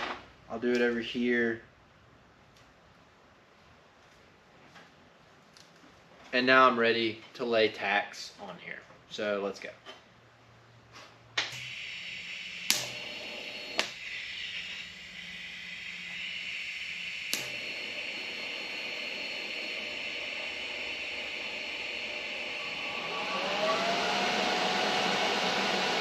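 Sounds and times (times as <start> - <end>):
welding arc hissing: 11.4 - 22.8
machine whine: 11.6 - 26.0
sharp clicks: 17.3 - 17.6.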